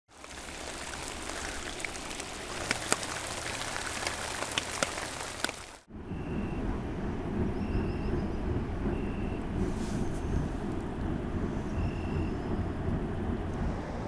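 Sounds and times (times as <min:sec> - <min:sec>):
heavy rain on pond: 0:00.1 - 0:05.9
low rumbling noise: 0:00.1 - 0:14.0.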